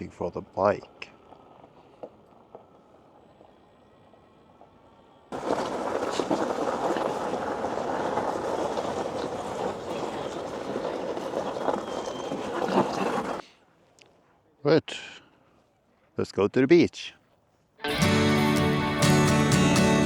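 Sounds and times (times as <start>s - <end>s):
road noise: 0.0s - 13.5s
wind buffeting microphone: 5.4s - 13.4s.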